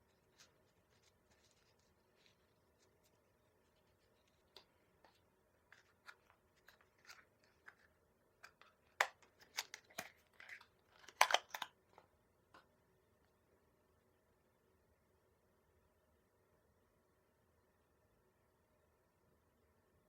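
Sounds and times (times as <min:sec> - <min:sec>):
crinkling scrapes: 0:00.0 - 0:11.6.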